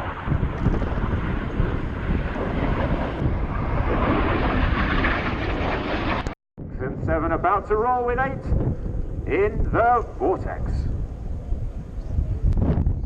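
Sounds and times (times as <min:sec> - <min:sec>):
jets flying by: 0:00.0 - 0:06.4.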